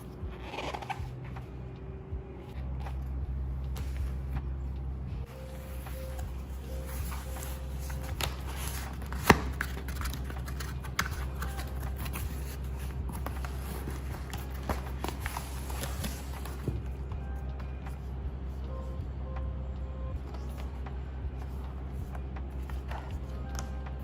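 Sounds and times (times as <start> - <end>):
packaging rustling and clicking: 6.1 - 16.8.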